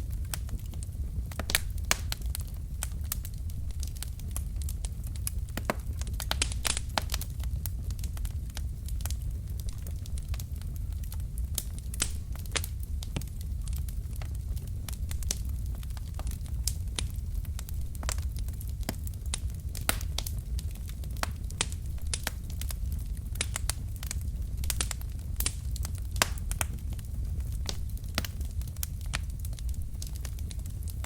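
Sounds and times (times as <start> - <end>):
logs crackling and popping: 0.0 - 31.0
low rumble of flames: 0.0 - 31.0.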